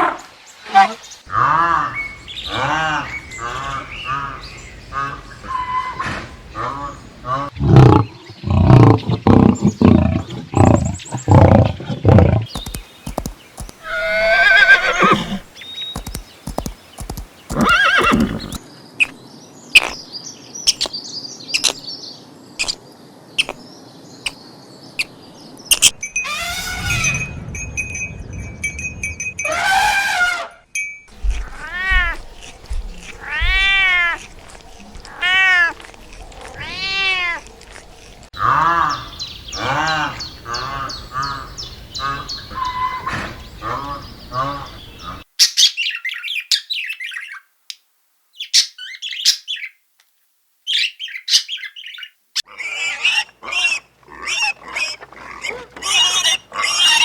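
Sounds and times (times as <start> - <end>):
small birds chirping: 0.5 - 25.9, 31.2 - 47.4
cat meowing: 31.3 - 32.2, 33.2 - 34.2, 35.1 - 35.8, 36.6 - 37.4.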